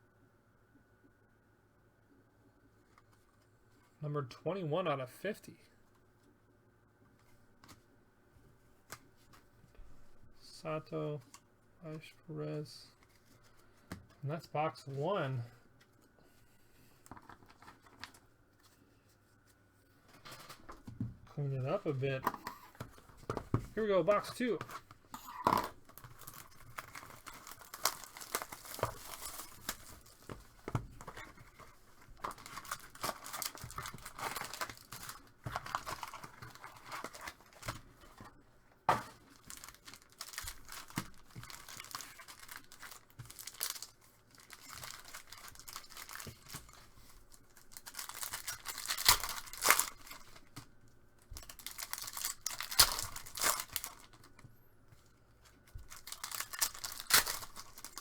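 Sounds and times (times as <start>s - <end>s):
packaging ripping and rustling: 22.6s - 38.3s, 38.9s - 54.4s, 55.4s - 58.0s.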